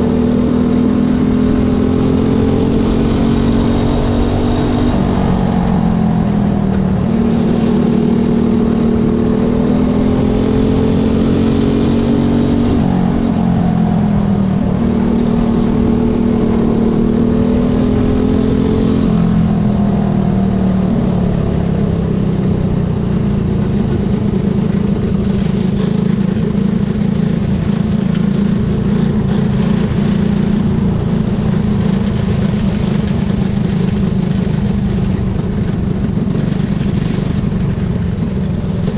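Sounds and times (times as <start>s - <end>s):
racing motorcycle engines revving: 0.0s - 38.9s.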